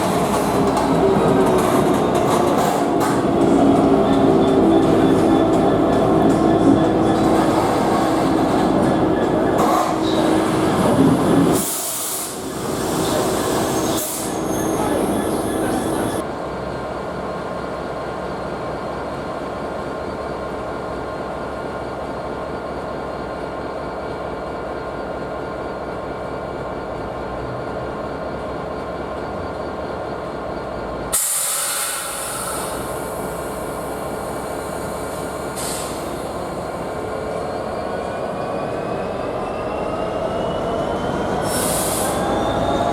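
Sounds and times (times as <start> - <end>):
train running on rails: 0.0 - 42.9
wheel squeal: 4.0 - 16.2.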